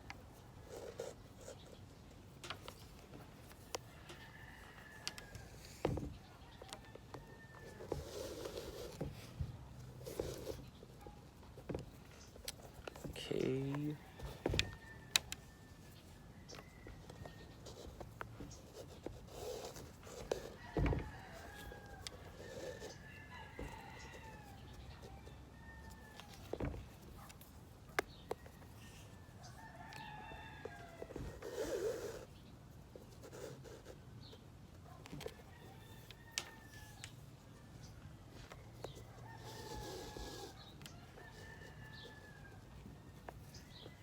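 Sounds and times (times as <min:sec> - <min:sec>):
rooster crowing: 0:03.9 - 0:05.8, 0:13.9 - 0:17.8, 0:20.4 - 0:26.5, 0:28.4 - 0:31.7, 0:35.3 - 0:37.1, 0:38.4 - 0:43.2
thump: 0:20.8 - 0:21.1.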